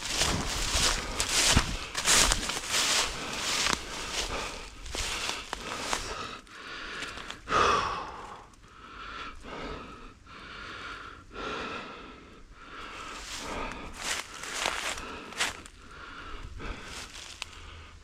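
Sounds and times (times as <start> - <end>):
heavy breathing: 0.0 - 18.0.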